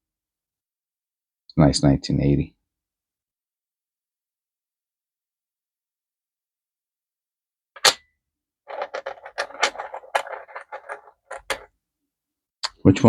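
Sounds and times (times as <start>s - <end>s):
small objects handled on desk: 8.7s - 11.7s.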